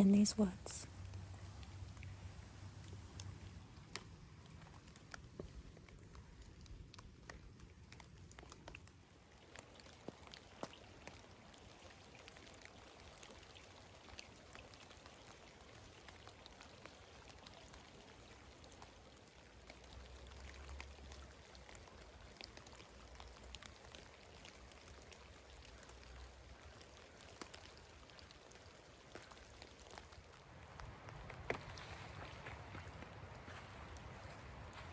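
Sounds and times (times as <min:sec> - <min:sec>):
light rain: 0:00.0 - 0:34.9
raindrop ticks: 0:00.0 - 0:34.9
soft low rumble: 0:30.5 - 0:34.9.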